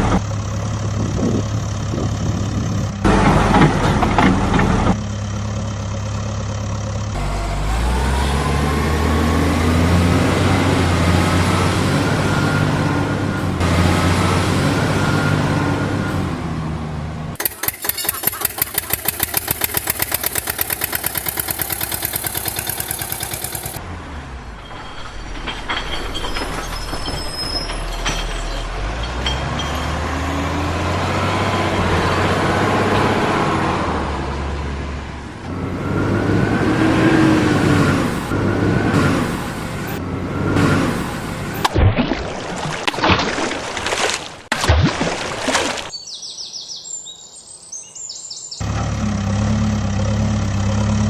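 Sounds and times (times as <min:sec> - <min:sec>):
engine chugging: 0:00.0 - 0:23.8
engine note rising and falling: 0:06.2 - 0:23.8, 0:29.9 - 0:41.6, 0:48.6 - 0:51.0.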